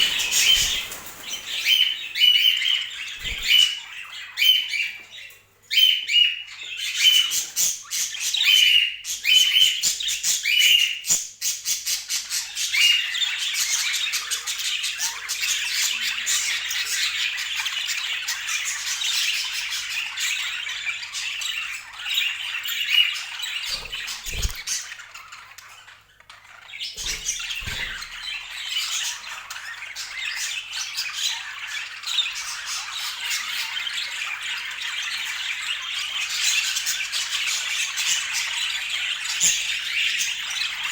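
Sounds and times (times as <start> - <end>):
budgerigars chattering: 0.0 - 4.9, 22.1 - 37.4.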